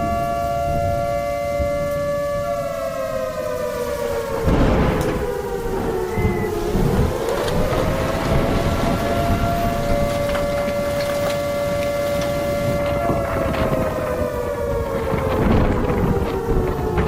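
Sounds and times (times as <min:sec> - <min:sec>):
wailing wind whistle: 0:00.0 - 0:17.0
wind roaring: 0:00.0 - 0:17.0.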